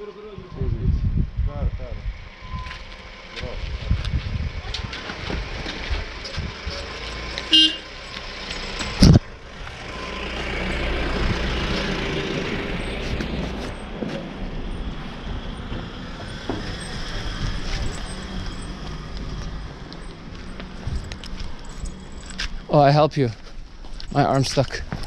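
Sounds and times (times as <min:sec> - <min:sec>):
vehicle rumble: 0:00.0 - 0:25.0
wind noise on microphone: 0:00.3 - 0:06.9, 0:08.8 - 0:09.4, 0:11.0 - 0:13.7, 0:14.6 - 0:19.8, 0:20.7 - 0:22.7
vehicle horn toot: 0:07.5 - 0:07.9.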